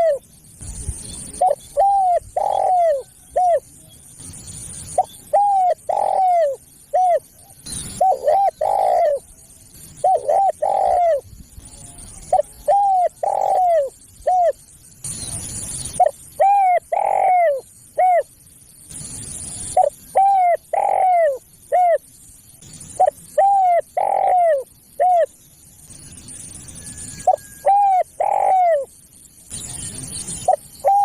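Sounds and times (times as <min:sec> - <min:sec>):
dove cooing: 0:00.0 - 0:00.2, 0:01.4 - 0:03.8, 0:04.9 - 0:09.3, 0:10.0 - 0:11.3, 0:12.2 - 0:14.6, 0:16.0 - 0:18.3, 0:19.8 - 0:22.0, 0:23.0 - 0:25.3, 0:27.2 - 0:28.9, 0:30.4 - 0:31.0.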